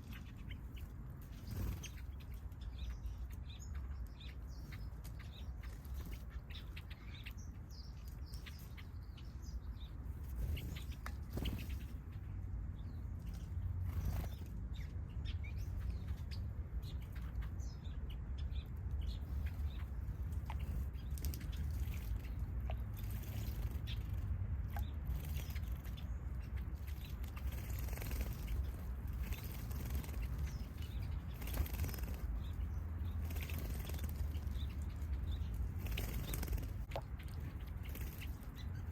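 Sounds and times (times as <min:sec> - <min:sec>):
small birds chirping: 0:00.0 - 0:38.9
wings fluttering: 0:00.7 - 0:02.4, 0:10.0 - 0:12.2, 0:26.8 - 0:38.9.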